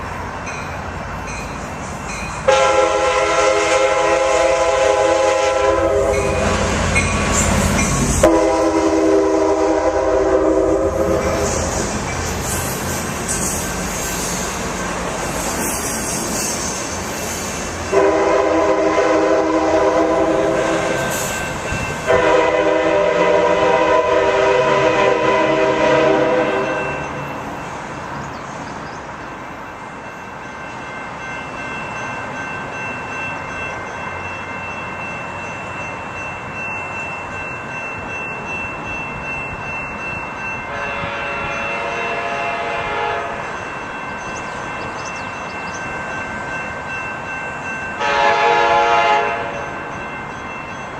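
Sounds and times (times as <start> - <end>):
train running past: 0.0 - 50.9
train air horn blasts: 2.4 - 6.9, 8.2 - 11.7, 17.9 - 21.2, 22.0 - 27.0, 40.7 - 43.5, 48.0 - 49.7.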